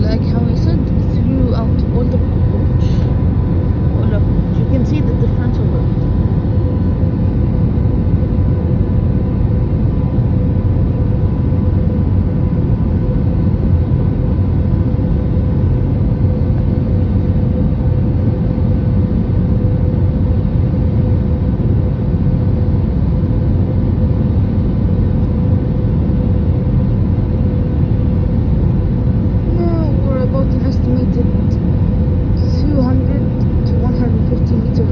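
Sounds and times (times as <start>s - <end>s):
airliner engines and airflow rumble: 0.0s - 34.9s
faint steady hum: 0.0s - 34.9s.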